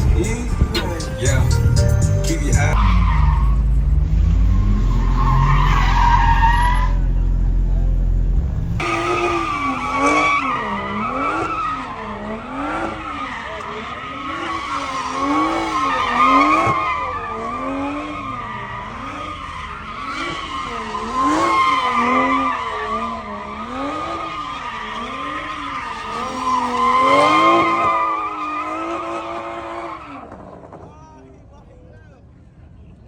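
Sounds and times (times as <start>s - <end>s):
car engine revving: 0.0s - 30.8s
tyres squealing: 4.4s - 7.4s, 8.8s - 30.3s.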